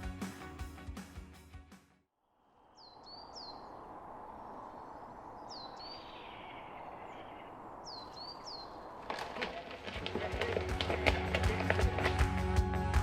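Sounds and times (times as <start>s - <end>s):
outdoor rushing background: 0.0s - 13.0s
bird calling: 2.7s - 12.0s.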